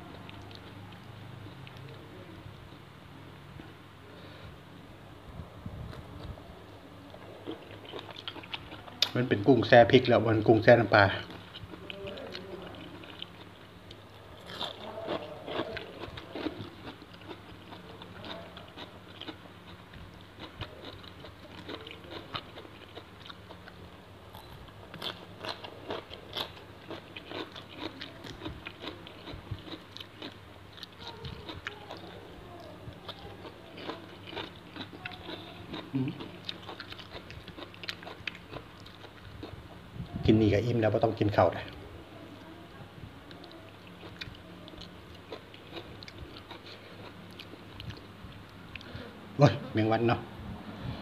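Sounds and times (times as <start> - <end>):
faint low hum: 0.0 - 51.0
chewing and crunching: 7.0 - 40.5, 43.2 - 49.0.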